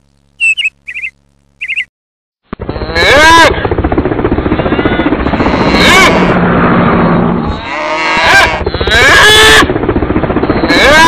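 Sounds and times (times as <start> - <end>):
rough fluttering noise: 3.5 - 8.9
cattle mooing: 4.9 - 9.7.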